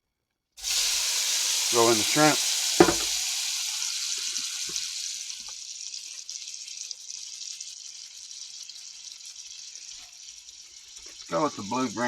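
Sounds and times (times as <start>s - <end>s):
shrimp sizzling in butter: 0.6s - 12.0s
faint knocks: 2.8s - 3.1s.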